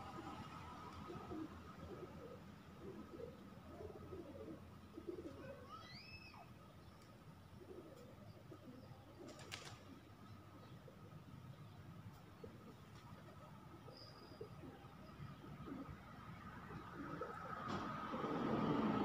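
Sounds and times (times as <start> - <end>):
faint bird cooing: 0.0 - 19.0
rising whistled bird call: 5.7 - 6.5.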